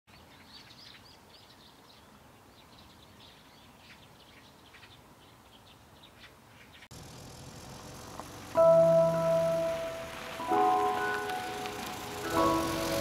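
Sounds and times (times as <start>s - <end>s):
small birds chirping: 0.1s - 8.6s
soft outdoor hiss: 0.1s - 13.0s.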